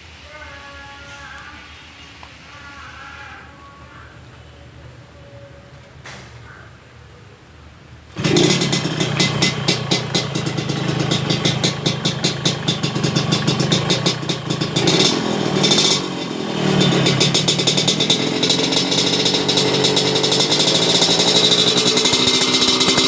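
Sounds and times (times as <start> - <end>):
two-stroke motorcycle engine running: 8.1 - 23.0.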